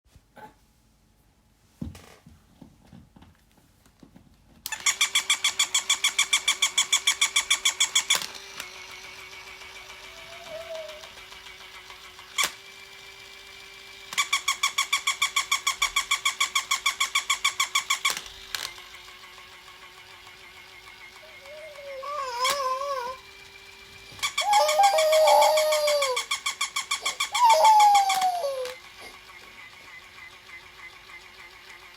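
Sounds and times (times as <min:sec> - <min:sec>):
toy motor hum: 0:04.7 - 0:31.9
electronic yapping: 0:24.2 - 0:28.8.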